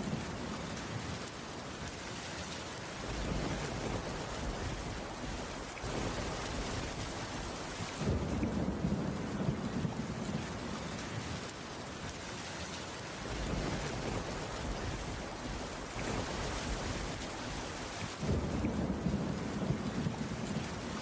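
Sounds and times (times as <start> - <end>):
steady rainfall: 0.0 - 21.0
distant thunder rumble: 3.0 - 11.4, 13.2 - 21.0.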